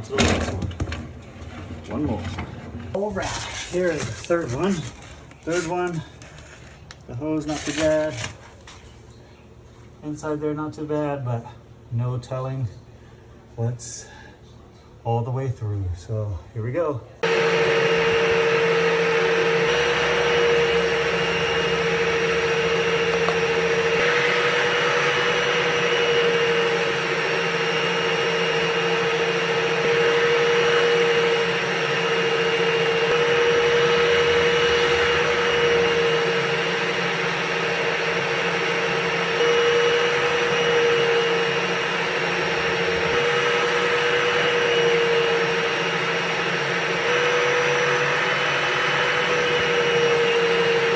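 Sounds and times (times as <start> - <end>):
vent vacuum running: 2.9 - 8.9, 17.2 - 50.9
drill spinning vent brush: 3.0 - 8.9, 17.2 - 50.9.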